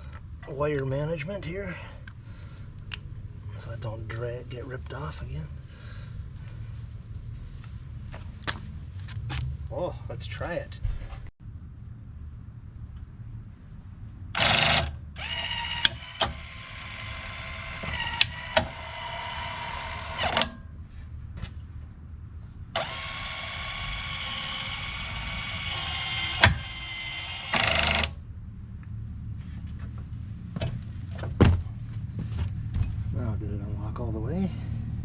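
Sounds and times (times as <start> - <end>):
actuator motor whine: 14.3 - 20.6, 22.7 - 28.2.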